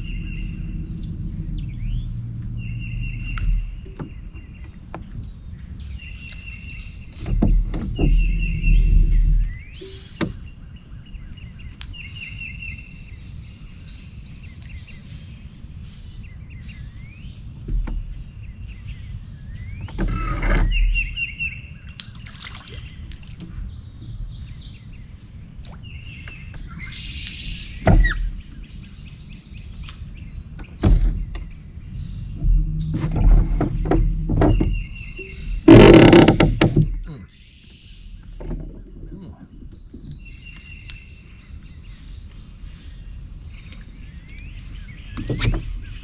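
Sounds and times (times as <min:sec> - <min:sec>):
low steady rumble: 0:00.0 - 0:21.9, 0:22.8 - 0:46.0
birds chirping: 0:00.0 - 0:46.0
sharp thumps: 0:07.2 - 0:10.4, 0:30.6 - 0:37.2.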